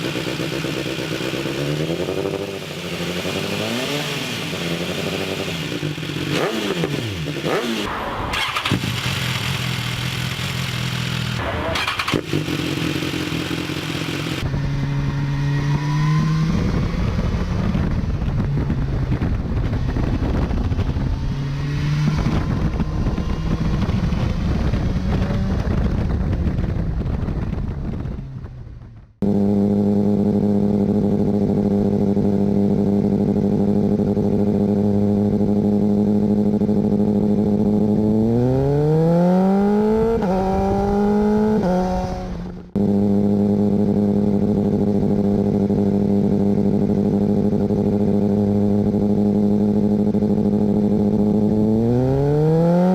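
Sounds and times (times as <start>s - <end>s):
motorcycle engine idling: 0.0s - 1.8s, 8.4s - 14.5s
motorcycle engine revving: 0.0s - 52.9s.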